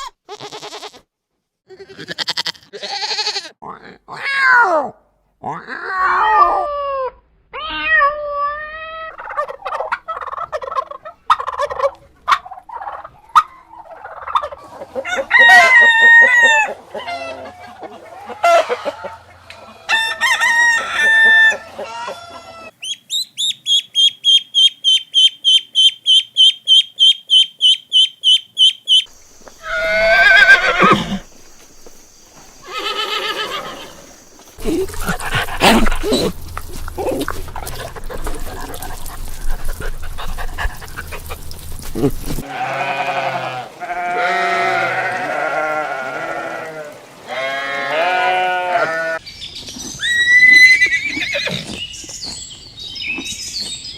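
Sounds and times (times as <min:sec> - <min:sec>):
hens clucking: 0:09.1 - 0:22.7, 0:29.0 - 0:43.0
rapid high-pitched chicken calls: 0:14.2 - 0:35.9
roosters crowing: 0:15.0 - 0:22.8, 0:29.4 - 0:36.4, 0:42.4 - 0:49.2.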